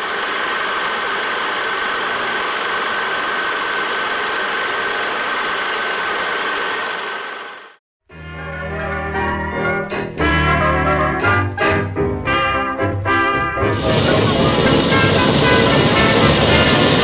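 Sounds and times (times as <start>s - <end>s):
motorcycle engine running: 13.7s - 17.0s.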